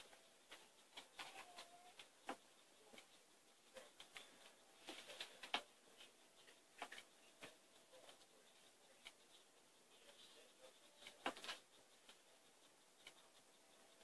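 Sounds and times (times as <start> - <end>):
faint clicks and rustling: 0.0 - 14.0
sharp ticks: 6.5 - 14.0.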